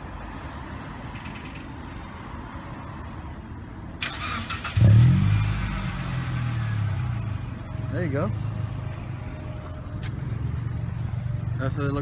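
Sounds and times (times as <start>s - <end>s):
car engine idling: 4.1s - 12.0s.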